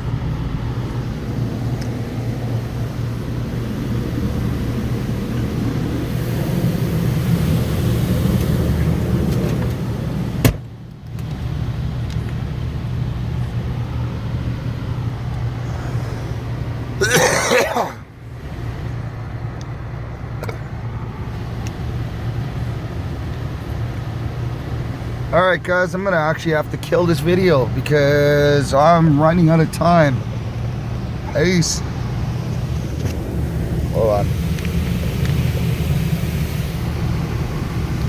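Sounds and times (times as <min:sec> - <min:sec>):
car wash equipment hum: 0:00.0 - 0:38.0.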